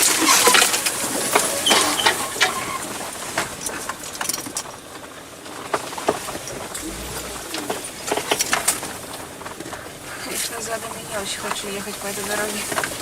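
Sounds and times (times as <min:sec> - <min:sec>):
car interior rattling over bumps: 0:02.8 - 0:13.0.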